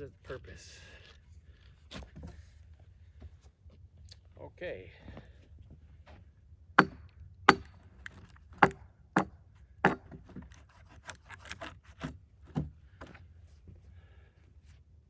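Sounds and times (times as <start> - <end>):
tool strikes splitting a log: 6.8 - 12.7.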